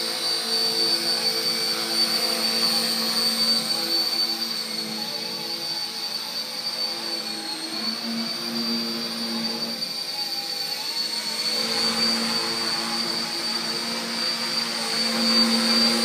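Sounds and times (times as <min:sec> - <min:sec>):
electric motor whine: 0:00.0 - 0:16.0
humming helicopter rotor: 0:00.0 - 0:16.0.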